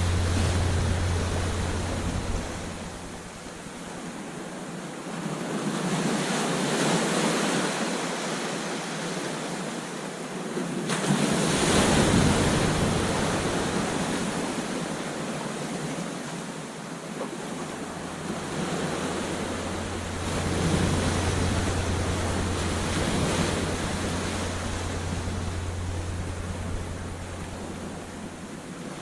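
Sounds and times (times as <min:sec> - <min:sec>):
ocean surf breaking on beach: 0:00.0 - 0:04.4, 0:10.4 - 0:29.0.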